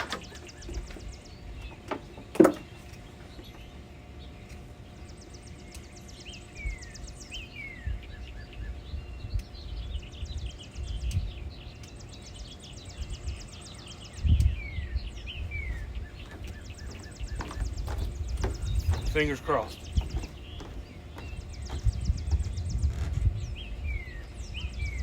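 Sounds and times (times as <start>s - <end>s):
songbirds whistling: 0.0s - 25.0s
wind rumble on microphone: 6.5s - 25.0s
bird trills: 11.5s - 23.0s.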